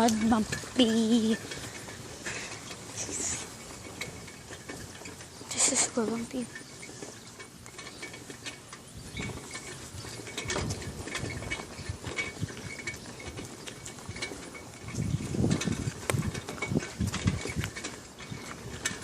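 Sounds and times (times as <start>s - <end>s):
bicycle rattling and clicking: 0.0s - 19.0s.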